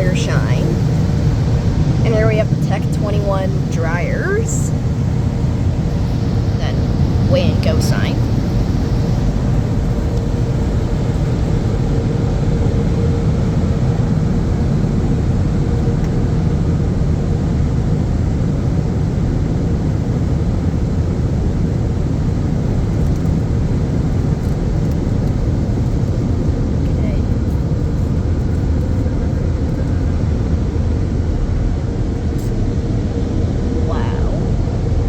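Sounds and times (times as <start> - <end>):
dryer blowers rushing air: 0.0 - 35.0
faint steady hum: 0.0 - 35.0.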